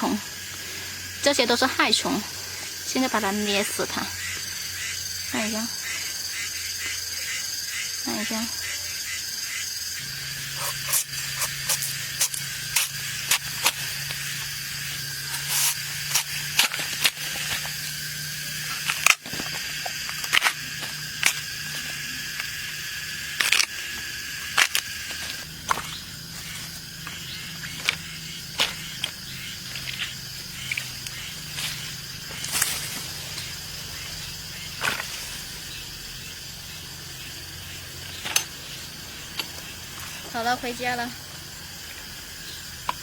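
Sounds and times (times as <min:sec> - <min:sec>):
high drone of insects: 0:00.0 - 0:43.0
sharp cracks and snaps: 0:18.8 - 0:19.4.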